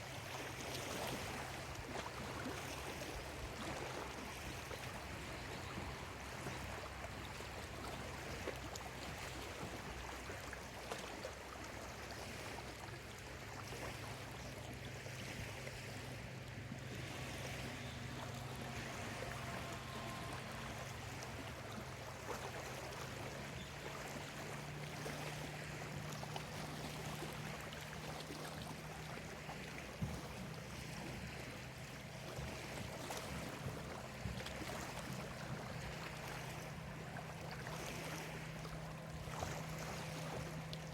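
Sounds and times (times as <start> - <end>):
waves lapping on shore: 0.0 - 40.9
low hum: 15.7 - 27.7.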